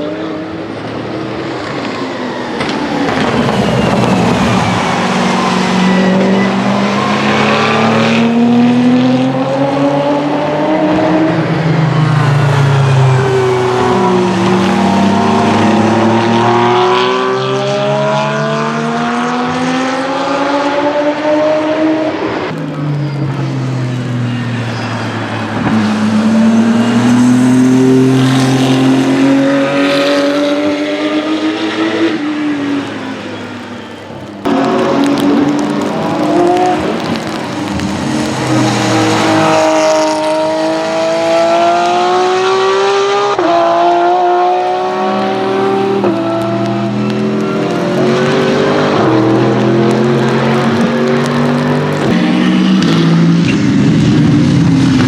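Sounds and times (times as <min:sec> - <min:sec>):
racing cars accelerating past: 0:00.0 - 0:55.0
tyre noise: 0:21.6 - 0:55.0.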